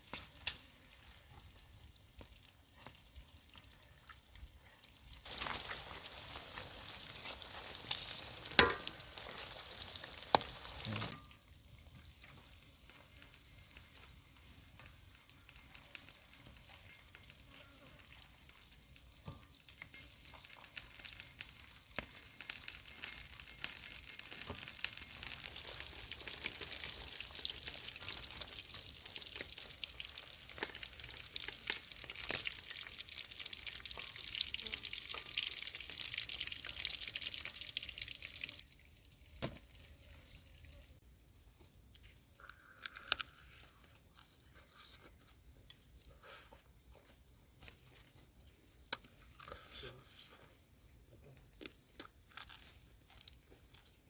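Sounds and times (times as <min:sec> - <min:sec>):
food sizzling in hot oil: 0:04.9 - 0:40.9.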